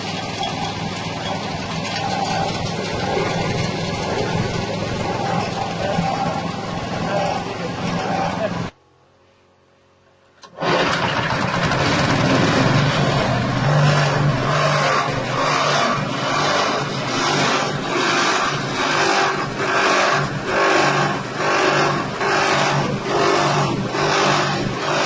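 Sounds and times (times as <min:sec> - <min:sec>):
corn grinding machine grinding: 0:00.0 - 0:08.7, 0:10.4 - 0:25.0
engine humming: 0:00.0 - 0:08.8, 0:10.0 - 0:25.0.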